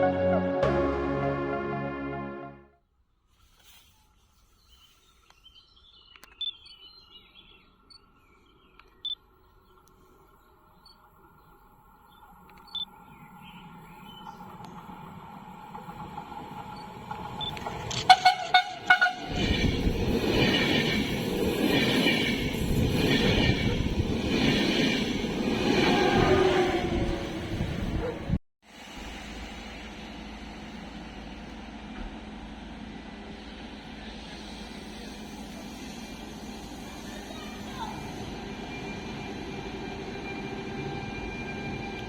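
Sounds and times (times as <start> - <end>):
electric locomotive whine: 10.8 - 42.0
train rumbling past: 11.0 - 42.0.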